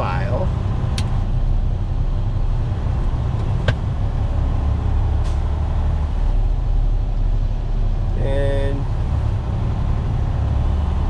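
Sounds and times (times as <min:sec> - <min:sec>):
diesel truck engine rumble: 0:00.0 - 0:11.0.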